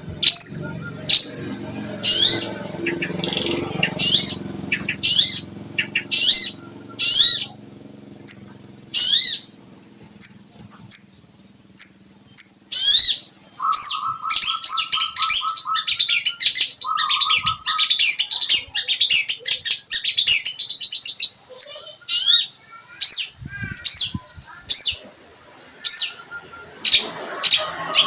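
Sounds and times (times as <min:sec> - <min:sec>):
low rapid trill: 0:00.0 - 0:18.8
shrike chattering song: 0:00.0 - 0:28.0
shrike chirps: 0:00.2 - 0:07.6, 0:11.8 - 0:18.8.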